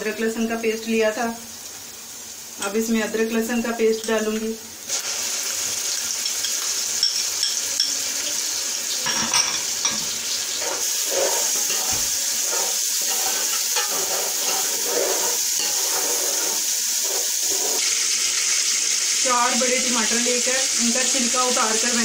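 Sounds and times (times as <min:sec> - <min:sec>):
paste sizzling in hot oil: 0:00.0 - 0:22.0
spoon clinking against pot: 0:06.2 - 0:08.0, 0:09.0 - 0:10.1, 0:13.1 - 0:14.6.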